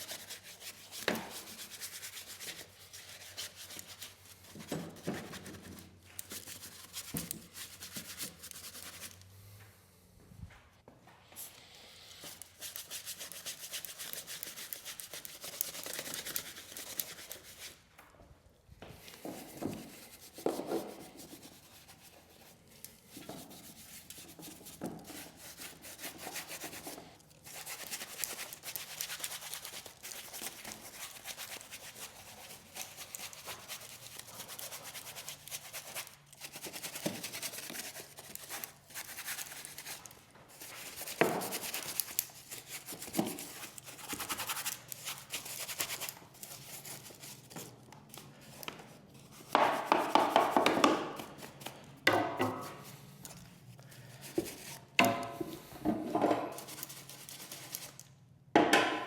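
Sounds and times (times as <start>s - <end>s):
stiff brush scrubbing: 19.8s - 47.5s.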